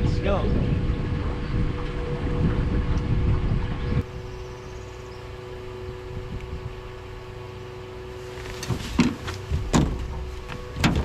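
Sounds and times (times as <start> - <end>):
wind noise on microphone: 0.0 - 4.8, 5.9 - 6.9
boat motor humming: 0.0 - 11.0.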